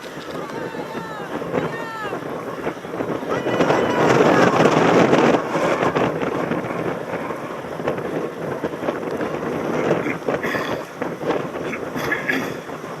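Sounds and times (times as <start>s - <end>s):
bike rattling and knocking: 0.0s - 1.2s
wind buffeting microphone: 0.0s - 13.0s.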